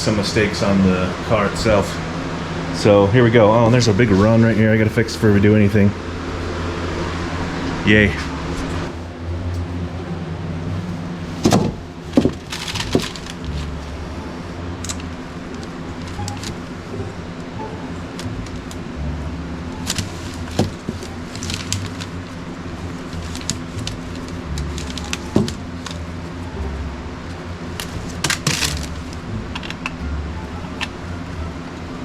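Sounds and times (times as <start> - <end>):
fan hum: 0.0 - 32.0
knocks and clicks of handling: 11.4 - 13.9, 14.8 - 17.1, 19.8 - 22.2, 22.9 - 26.1, 27.8 - 30.0.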